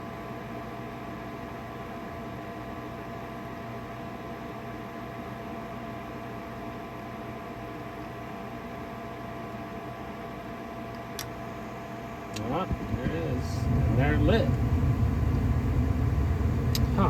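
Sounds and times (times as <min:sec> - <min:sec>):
furnace fan humming: 0:09.7 - 0:17.0.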